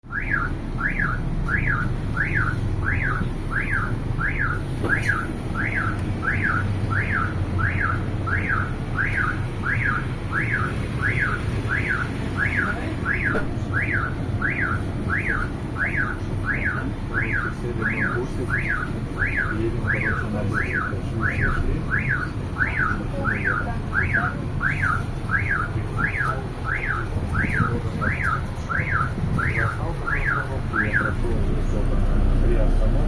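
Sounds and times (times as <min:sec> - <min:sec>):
vehicle alarm siren wailing: 0:00.1 - 0:31.4.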